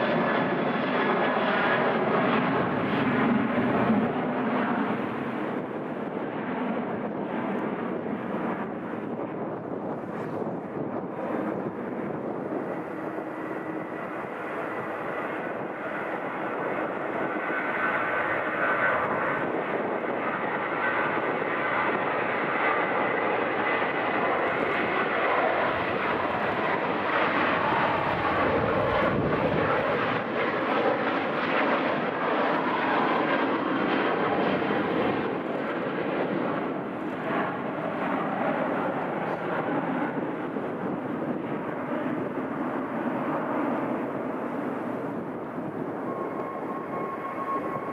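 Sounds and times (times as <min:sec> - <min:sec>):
jet engines roaring: 0:00.0 - 0:47.9
thin whine: 0:44.4 - 0:47.9.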